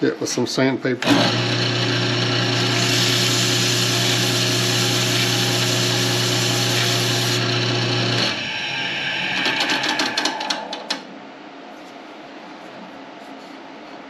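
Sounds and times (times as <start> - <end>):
wood lathe motor hum: 1.0 - 11.1
sandpaper hiss on spinning wood: 2.7 - 7.4.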